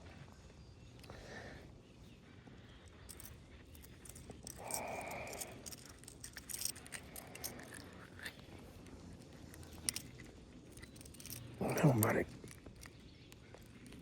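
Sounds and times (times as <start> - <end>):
small tackle clicks: 3.1 - 14.0.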